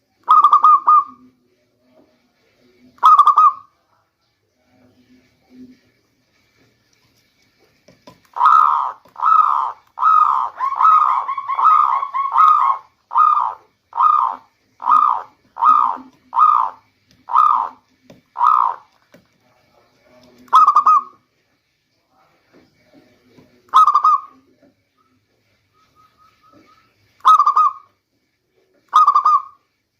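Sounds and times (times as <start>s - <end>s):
dove cooing: 0.2s - 1.3s, 3.0s - 3.7s, 8.3s - 17.8s, 18.4s - 18.9s, 20.5s - 21.2s, 23.7s - 24.4s, 25.9s - 27.9s, 28.9s - 29.6s.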